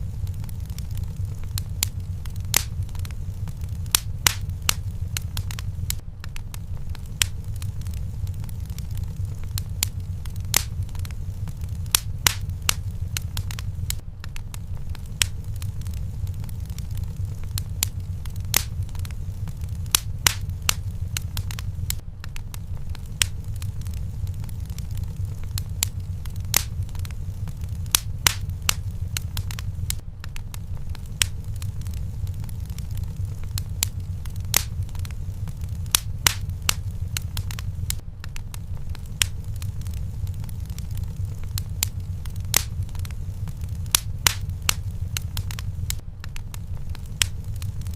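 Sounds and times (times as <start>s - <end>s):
fire low rumble: 0.0s - 47.9s
wood fire crackling and popping: 0.0s - 47.9s.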